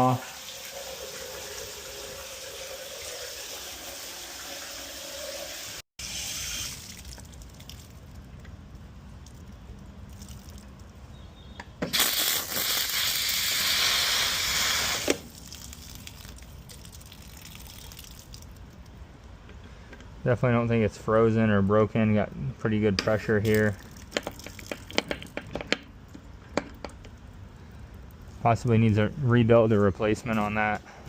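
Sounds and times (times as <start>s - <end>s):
shower water running: 0.0s - 6.8s
water gushing from spigot: 0.0s - 7.9s, 11.9s - 18.6s.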